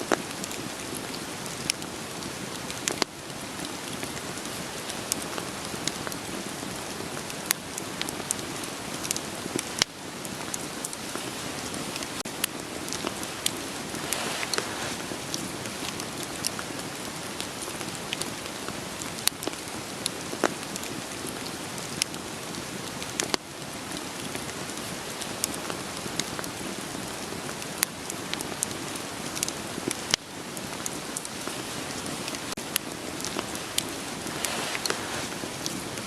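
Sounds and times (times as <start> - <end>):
rain pattering: 0.0 - 36.0
wood fire crackling and popping: 0.0 - 36.0.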